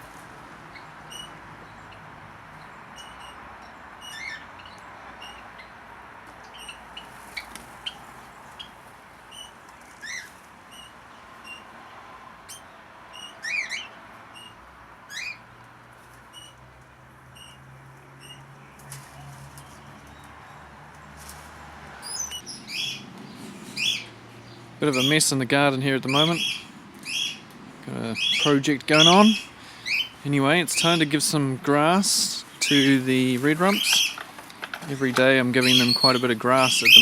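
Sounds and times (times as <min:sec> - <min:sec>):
birds chirping: 0:00.7 - 0:05.8, 0:22.0 - 0:37.0
bird rising calls: 0:22.0 - 0:25.2, 0:26.0 - 0:27.5, 0:28.1 - 0:31.1, 0:32.2 - 0:37.0.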